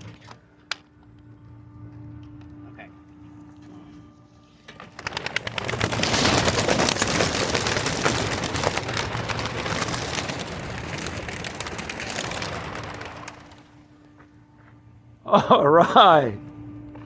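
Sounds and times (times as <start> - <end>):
pigeon wings clapping and flapping: 4.6 - 13.9.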